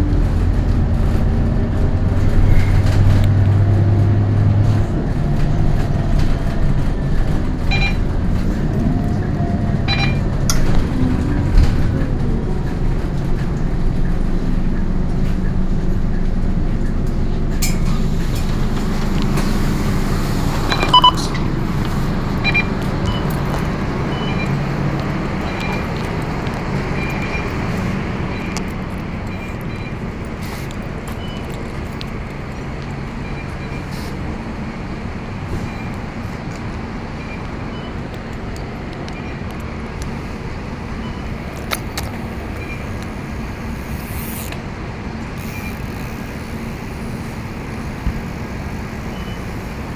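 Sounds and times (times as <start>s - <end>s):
tyre and road noise: 0.0s - 37.0s, 39.6s - 49.9s
bus engine hum: 0.0s - 49.9s
short beep: 7.7s - 8.0s, 9.9s - 10.2s, 20.7s - 21.2s, 22.4s - 23.3s.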